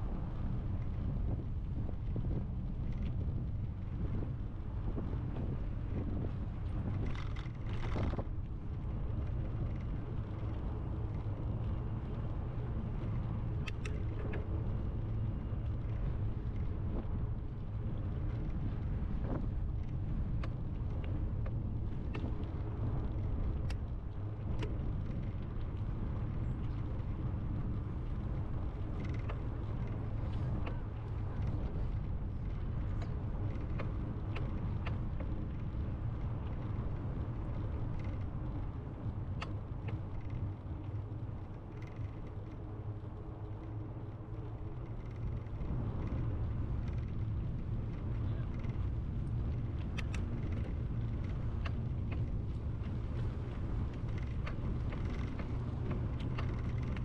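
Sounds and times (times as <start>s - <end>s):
road noise: 0.0s - 57.0s
wind on microphone: 0.0s - 57.0s
light clicks: 13.5s - 14.4s, 47.8s - 57.0s.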